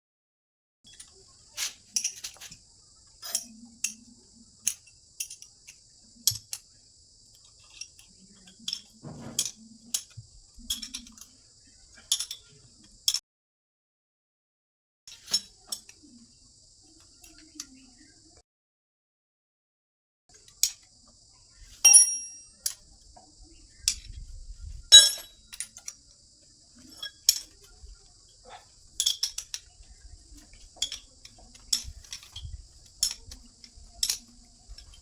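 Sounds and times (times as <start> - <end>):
metal tools clinking: 0.9 - 2.6, 3.2 - 4.0, 21.8 - 22.8, 24.9 - 25.9, 26.8 - 27.8, 28.8 - 29.7, 30.4 - 35.0.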